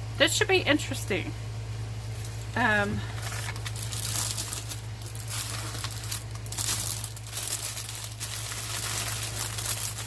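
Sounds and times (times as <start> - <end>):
steady low hum: 0.0 - 10.0
plastic packaging crinkling: 2.2 - 10.0.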